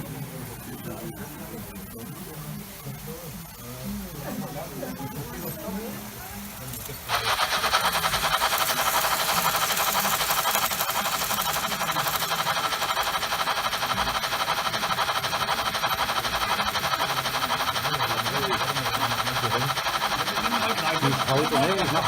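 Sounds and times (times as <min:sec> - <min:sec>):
model train clattering on track: 0:05.3 - 0:22.0.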